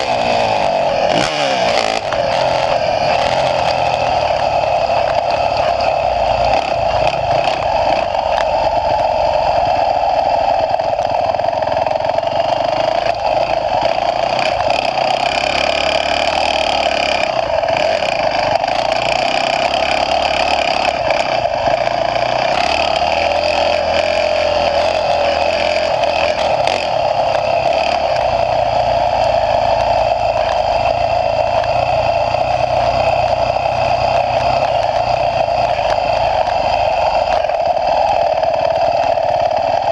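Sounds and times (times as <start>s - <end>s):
dirt bike engine under load: 0.0s - 9.0s.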